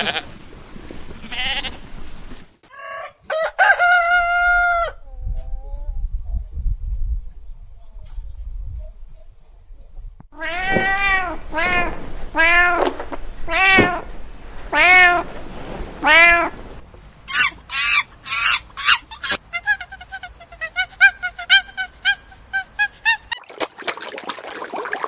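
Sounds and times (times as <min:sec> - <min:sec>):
animal honking calls: 0:10.4 - 0:16.8
cat meowing: 0:10.4 - 0:16.8.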